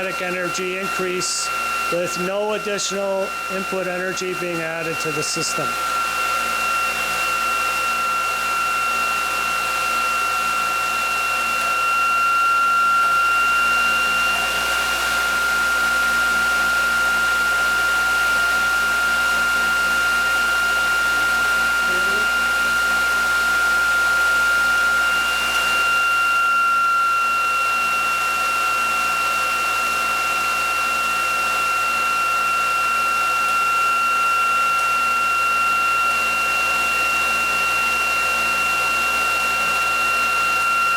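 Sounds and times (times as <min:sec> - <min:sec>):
whirring hum: 0:00.0 - 0:27.0
generator high whine: 0:00.0 - 0:40.9.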